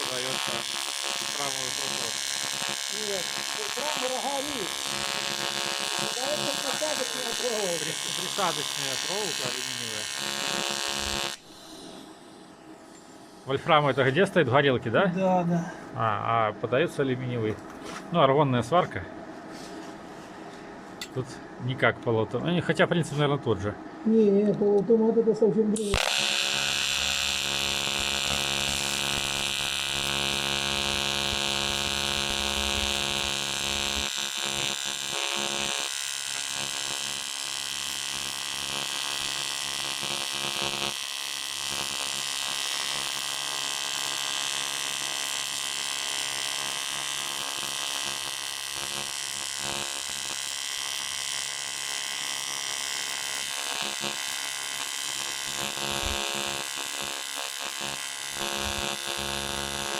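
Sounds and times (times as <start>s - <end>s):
welding arc buzzing: 0.0s - 13.6s, 25.8s - 59.9s.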